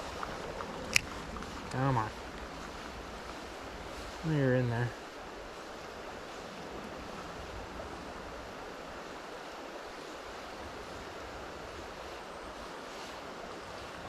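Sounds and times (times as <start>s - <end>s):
river water rushing over rocks: 0.0s - 14.0s.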